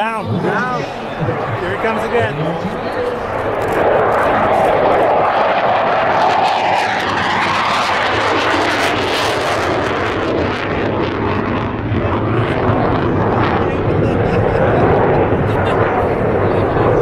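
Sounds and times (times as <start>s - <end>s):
airplane engine roar passing: 0.0s - 17.0s.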